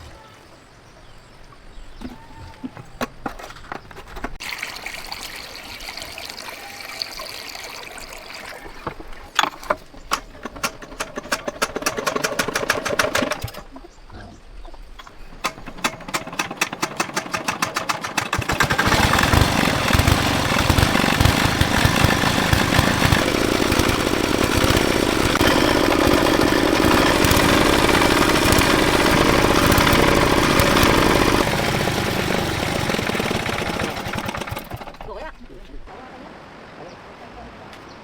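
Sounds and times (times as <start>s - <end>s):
tractor engine running: 9.8s - 13.7s, 15.3s - 35.6s.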